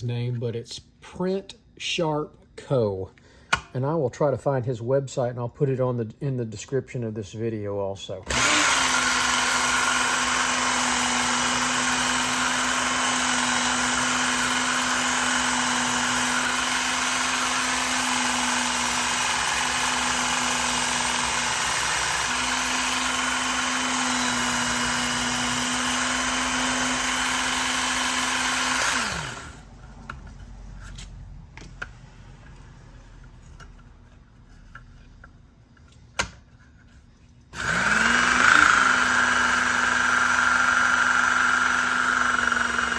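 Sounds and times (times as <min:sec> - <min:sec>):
belt sharpener grinding: 0:08.3 - 0:29.8, 0:37.5 - 0:42.9.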